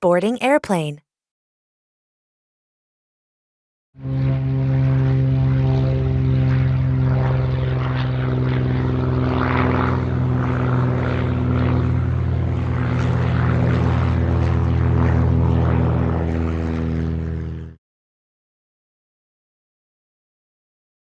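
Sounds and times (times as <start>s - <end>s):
propeller airplane engine running: 4.0s - 17.8s.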